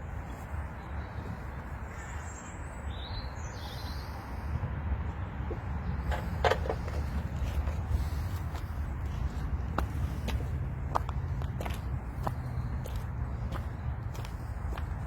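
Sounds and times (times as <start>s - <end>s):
low outdoor rumble: 3.6s - 15.0s.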